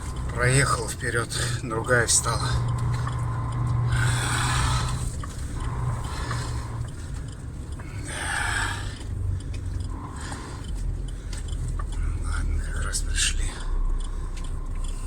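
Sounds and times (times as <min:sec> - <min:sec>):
lorry engine running: 0:00.0 - 0:15.0.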